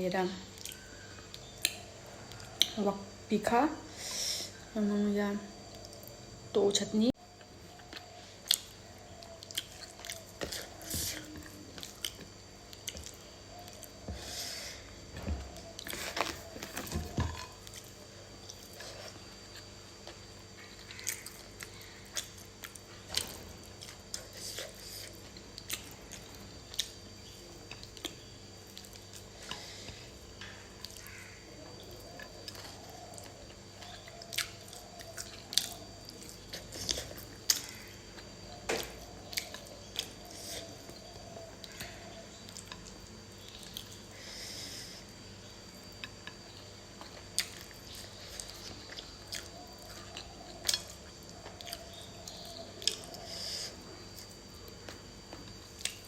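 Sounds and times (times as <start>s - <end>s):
person chewing: 7.8s - 14.8s, 32.0s - 44.5s, 45.8s - 55.0s.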